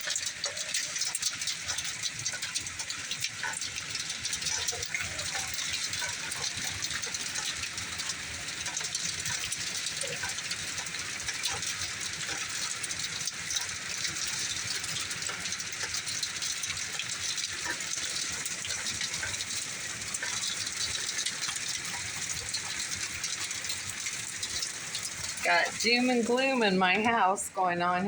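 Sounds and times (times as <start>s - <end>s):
heavy rain pouring: 0.0s - 28.0s
raindrops ticking on door and window: 0.0s - 28.0s.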